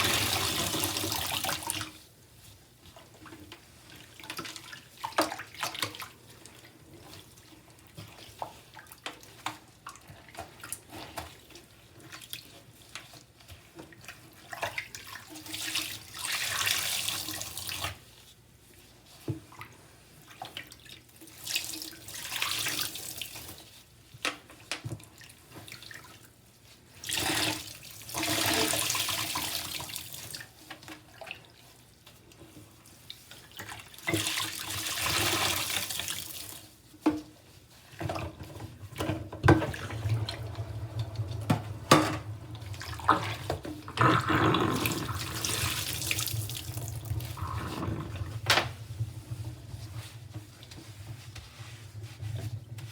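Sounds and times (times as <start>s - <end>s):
water dripping and splashing: 37.8s - 52.2s
water gushing from sponge: 39.7s - 52.9s.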